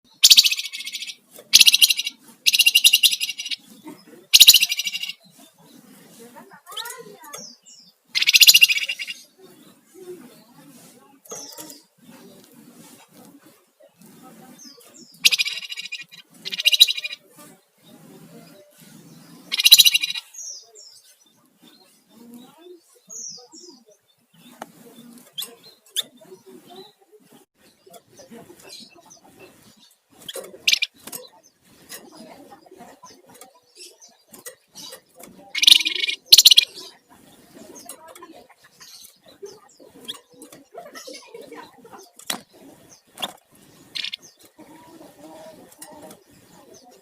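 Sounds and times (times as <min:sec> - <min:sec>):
bird calling in rattling trills: 0:00.1 - 0:03.6, 0:04.3 - 0:05.4, 0:06.6 - 0:09.4, 0:15.0 - 0:17.2, 0:19.4 - 0:20.6, 0:29.1 - 0:32.3, 0:33.1 - 0:37.0, 0:37.7 - 0:44.9.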